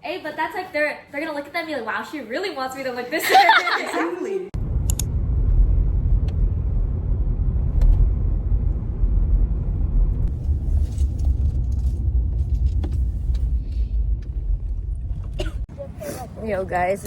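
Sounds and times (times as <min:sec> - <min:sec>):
low vehicle rumble: 0:04.6 - 0:17.0.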